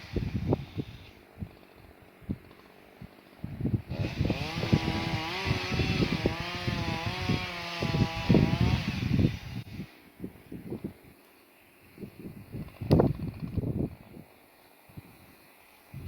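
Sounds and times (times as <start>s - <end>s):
chainsaw cutting wood: 0.0s - 9.9s.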